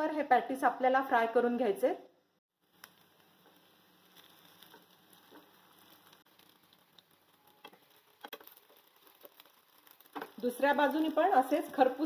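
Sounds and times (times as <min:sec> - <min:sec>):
oil sizzling in a pan: 0:02.5 - 0:12.0.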